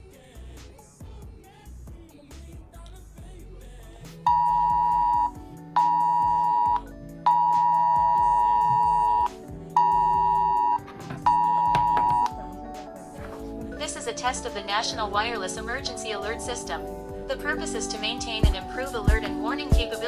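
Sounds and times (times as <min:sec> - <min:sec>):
two-pitch alert tone from phone: 0:04.3 - 0:12.3.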